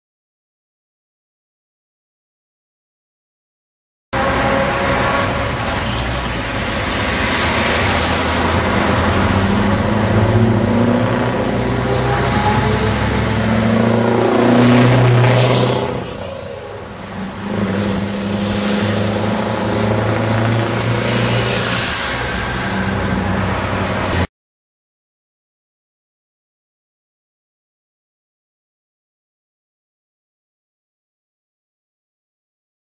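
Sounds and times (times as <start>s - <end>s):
diesel truck driving by: 4.2s - 24.3s.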